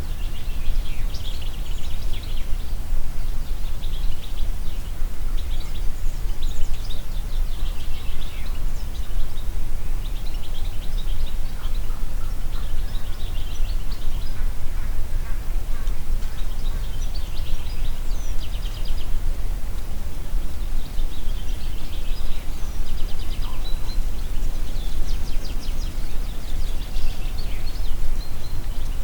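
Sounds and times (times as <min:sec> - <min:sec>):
songbirds singing: 0:00.0 - 0:29.0
wind gusts in a forest: 0:00.0 - 0:29.0.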